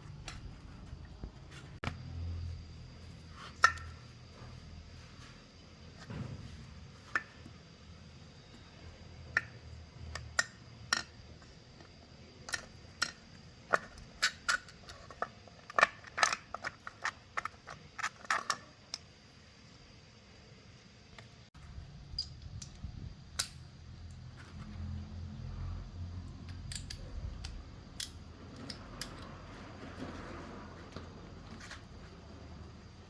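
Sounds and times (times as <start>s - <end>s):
hand tools clicking and tapping: 0.0s - 2.0s, 3.4s - 4.1s.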